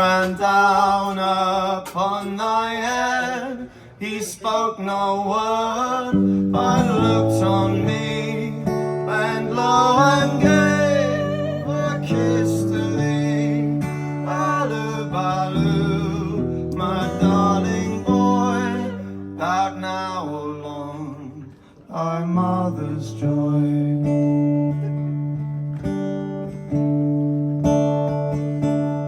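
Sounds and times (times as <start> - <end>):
acoustic guitar strumming: 0.0 - 29.0
wavering melody line: 9.1 - 13.1.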